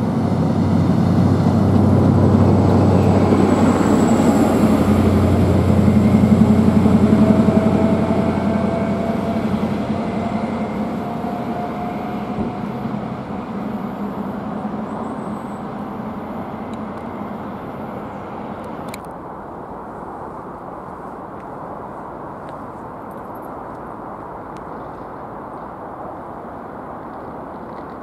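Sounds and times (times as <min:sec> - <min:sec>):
train wheel noise: 0:00.0 - 0:19.1
high speed train passing: 0:00.0 - 0:28.0.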